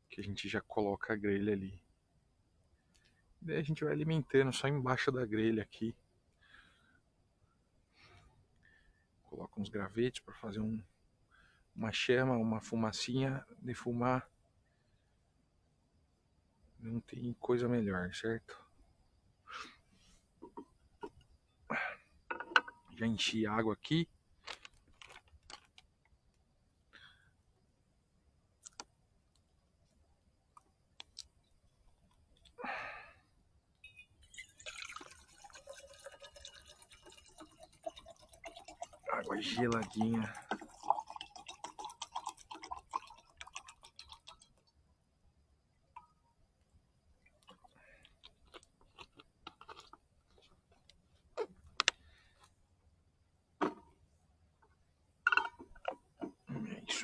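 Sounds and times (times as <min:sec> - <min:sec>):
water pouring and dripping: 0:34.2 - 0:44.8.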